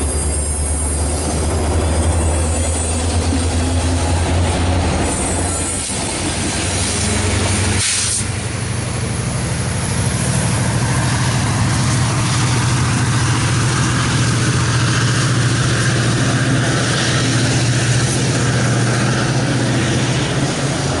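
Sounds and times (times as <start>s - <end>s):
diesel locomotive engine running: 0.0s - 21.0s
air hiss burst: 7.7s - 8.4s.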